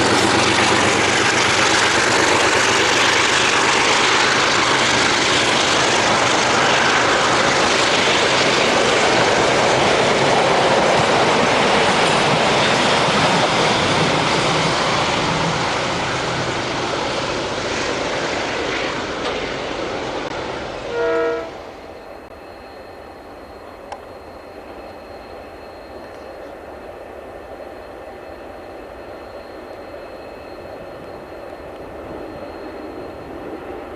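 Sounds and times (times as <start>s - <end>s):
train rumbling on rails: 0.0s - 33.9s
brief pitched tone: 20.9s - 26.5s.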